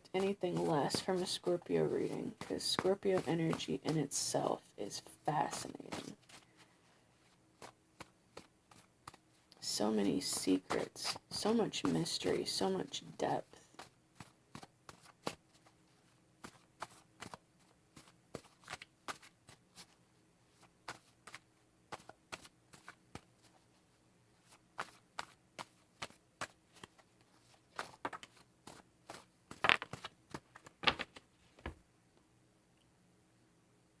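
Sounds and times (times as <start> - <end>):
cards being shuffled: 0.2 - 4.1, 13.8 - 23.6, 24.4 - 31.8.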